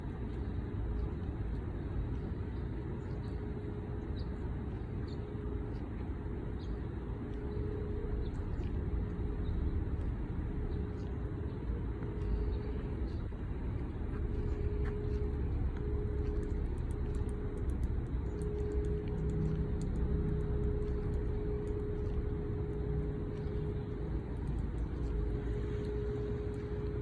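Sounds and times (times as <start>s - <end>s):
city traffic rumble: 0.0s - 27.0s.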